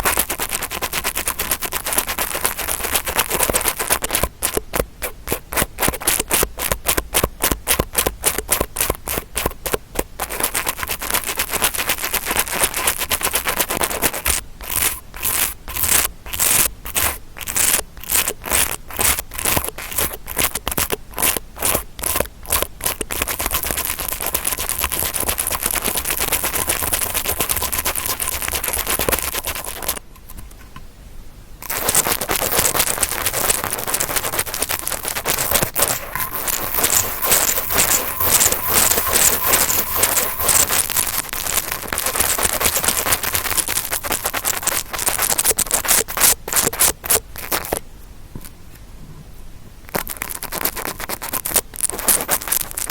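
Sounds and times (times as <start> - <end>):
brush scratching close to mic: 0.0 - 6.8, 22.0 - 30.5, 31.7 - 47.2.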